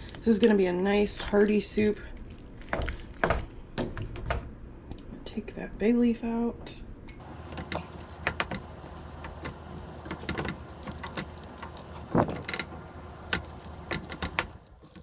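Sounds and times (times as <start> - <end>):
steady low hum: 7.0 - 15.0
utensil scraping a cooking pot: 7.2 - 15.0.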